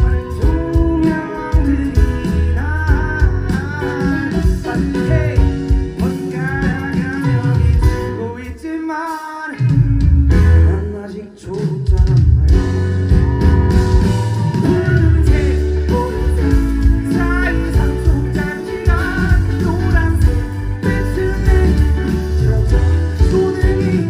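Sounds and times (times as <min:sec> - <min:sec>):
man singing: 0:00.0 - 0:13.4, 0:14.4 - 0:24.0
pop-rock band playing: 0:00.0 - 0:24.0.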